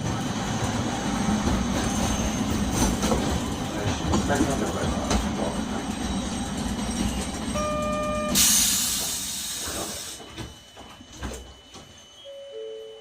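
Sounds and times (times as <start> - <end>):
tram coming to rest: 0.0 - 13.0
electronic beep: 7.6 - 8.4, 10.2 - 13.0
two-note beep: 7.6 - 8.4, 12.2 - 13.0.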